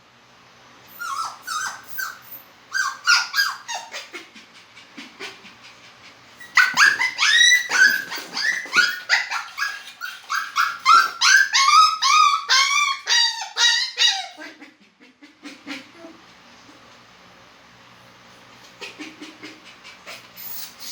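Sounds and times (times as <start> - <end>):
dog yelping whines: 0.9 - 4.2, 6.4 - 14.6.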